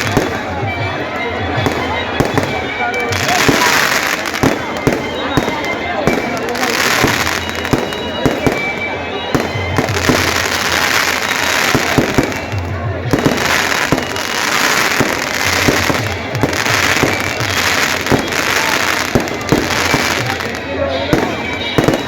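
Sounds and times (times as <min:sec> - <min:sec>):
background music: 0:00.0 - 0:22.0
fireworks bangs and pops: 0:00.0 - 0:22.0
fireworks crackling hiss: 0:01.6 - 0:22.0.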